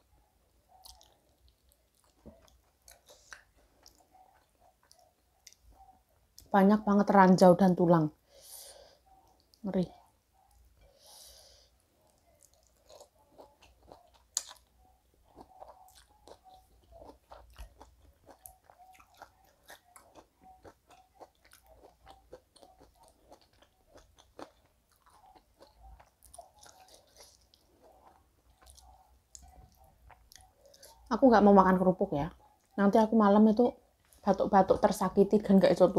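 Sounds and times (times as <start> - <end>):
close-up chewing: 0.6 - 6.4, 9.0 - 31.2.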